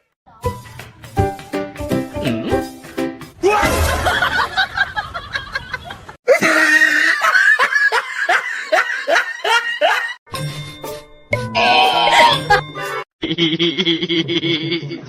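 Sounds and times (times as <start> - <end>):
person laughing: 3.5 - 10.2, 12.0 - 15.0.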